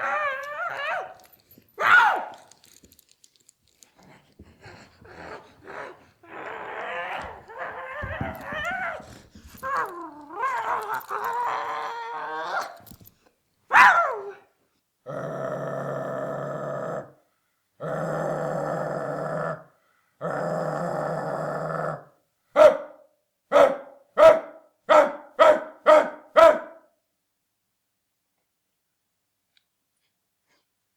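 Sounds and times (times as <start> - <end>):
dog yelp: 0.0 - 1.2, 1.8 - 2.5, 13.7 - 14.4
dog whining: 0.0 - 2.5, 5.1 - 12.9.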